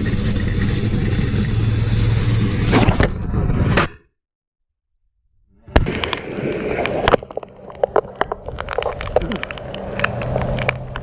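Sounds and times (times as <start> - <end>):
road traffic engines running: 0.0 - 2.7, 9.0 - 11.0.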